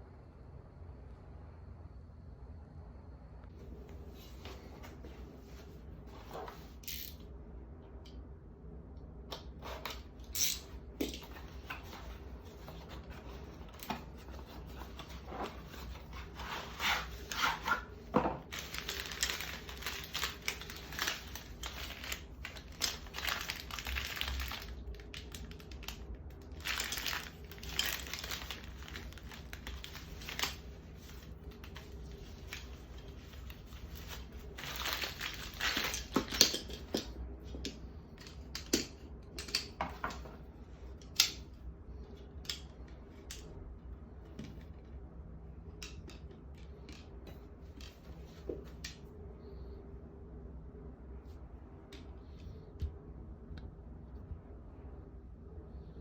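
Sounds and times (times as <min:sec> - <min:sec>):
steady low hum: 0:00.0 - 0:56.0
packaging crinkling and rustling: 0:10.6 - 0:37.7.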